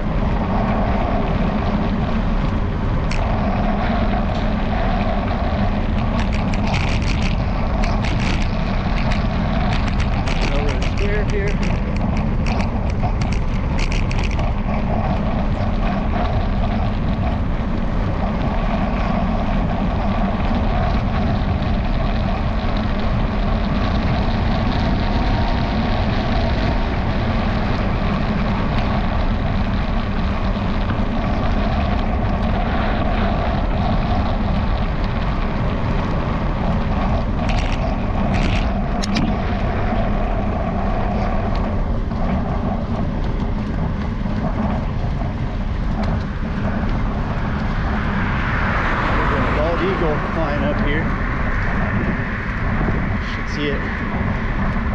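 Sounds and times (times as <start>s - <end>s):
wind and riding noise: 0.0s - 54.9s
sharp clicks: 5.9s - 14.5s
camera mount rattling: 6.0s - 14.5s, 37.4s - 39.3s.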